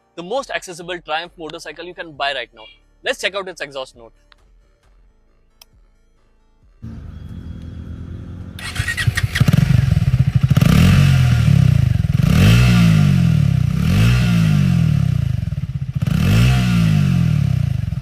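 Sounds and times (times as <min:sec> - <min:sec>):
motorcycle engine revving: 0:06.8 - 0:18.0.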